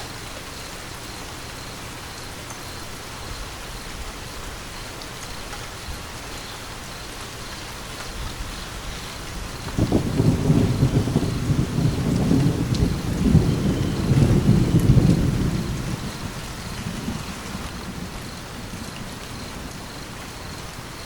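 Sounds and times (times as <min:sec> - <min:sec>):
steady rain: 0:00.0 - 0:21.0
thunder crack and rumble: 0:09.4 - 0:20.7.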